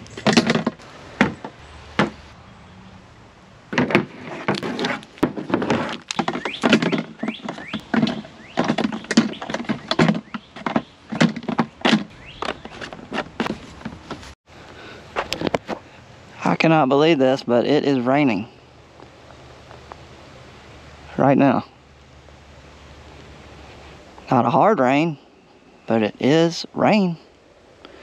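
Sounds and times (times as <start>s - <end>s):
sharp knocks and clicks: 0.0s - 2.2s, 3.7s - 14.2s.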